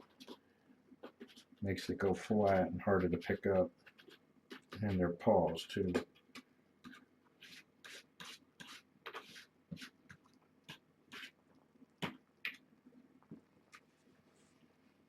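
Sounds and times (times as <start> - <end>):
kittens licking and smacking food: 9.8 - 13.9.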